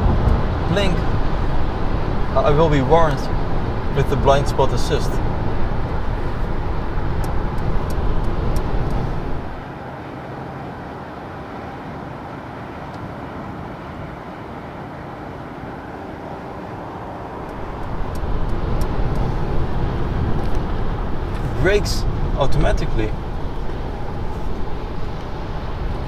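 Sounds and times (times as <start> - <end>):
road and wind noise in car: 0.0 - 26.0
light ticks: 17.5 - 19.3.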